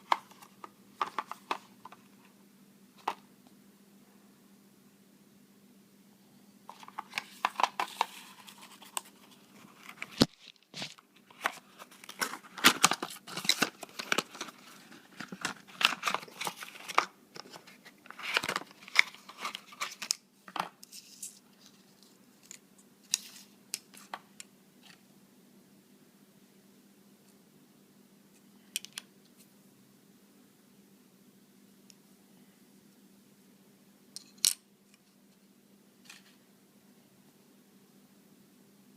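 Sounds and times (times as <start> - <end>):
plastic packaging crinkling: 6.7 - 20.2.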